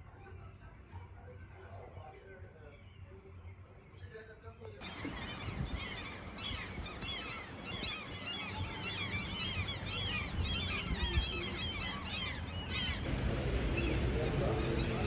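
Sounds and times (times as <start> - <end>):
birds chirping: 1.4 - 15.0
steady low rumble: 13.0 - 15.0.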